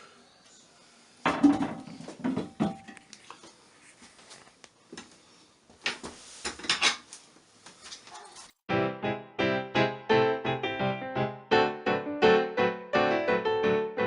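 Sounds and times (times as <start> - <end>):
piano music: 8.7 - 14.0.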